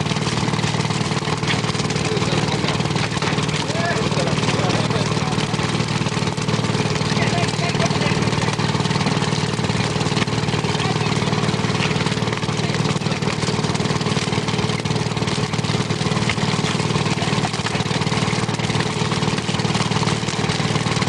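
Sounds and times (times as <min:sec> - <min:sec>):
boat engine running: 0:00.0 - 0:21.0.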